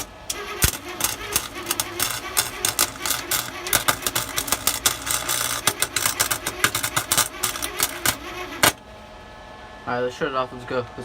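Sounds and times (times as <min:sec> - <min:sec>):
welder arc sputtering and crackling: 0:00.0 - 0:08.8.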